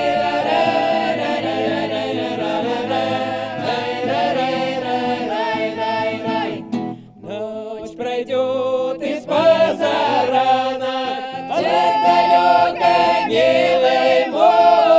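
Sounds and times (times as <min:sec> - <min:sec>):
choir singing long harmonies: 0:00.0 - 0:14.9.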